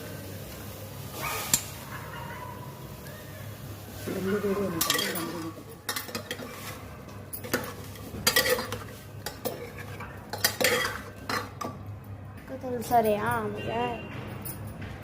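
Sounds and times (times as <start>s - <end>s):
spoon clinking against dishes: 4.8s - 6.7s, 7.3s - 11.8s.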